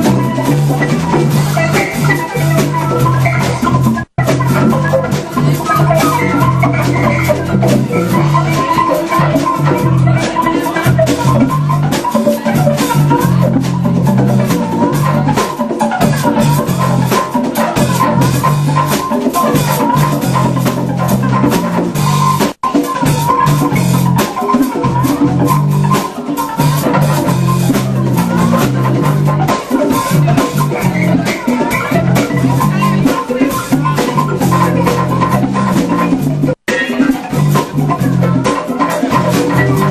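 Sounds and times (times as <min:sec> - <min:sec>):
jam band playing instrumental: 0:00.0 - 0:39.9.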